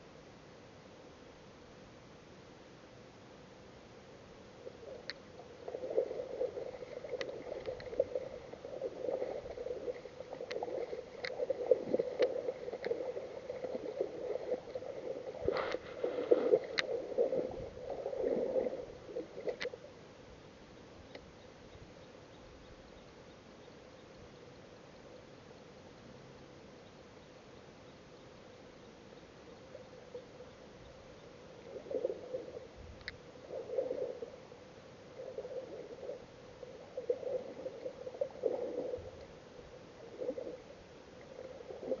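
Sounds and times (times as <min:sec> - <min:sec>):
water sloshing and gurgling: 0:04.6 - 0:20.0, 0:31.6 - 0:42.0
faint ticks: 0:04.6 - 0:25.4, 0:26.4 - 0:34.3, 0:35.2 - 0:42.0.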